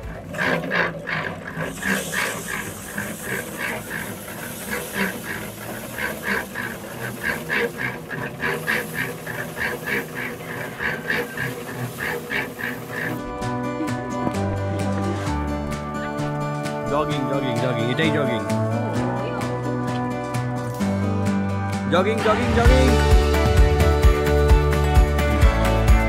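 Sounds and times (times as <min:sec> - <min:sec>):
ducks quacking: 0:00.0 - 0:16.3
steady hiss: 0:01.7 - 0:13.2.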